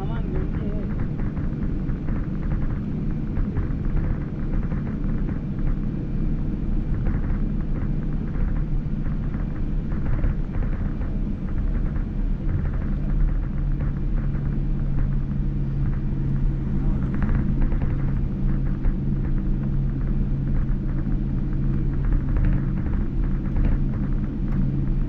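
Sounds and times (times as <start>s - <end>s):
airliner cabin rumble: 0.0s - 25.0s
constant hum: 0.0s - 25.0s.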